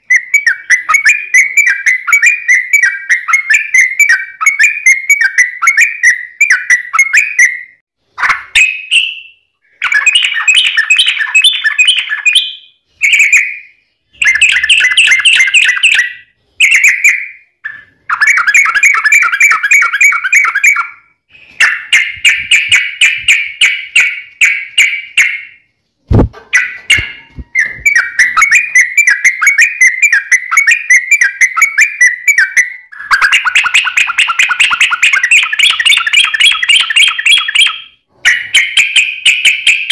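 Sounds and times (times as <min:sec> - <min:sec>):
bird singing chattering trills: 0:08.6 - 0:25.6, 0:26.2 - 0:39.9.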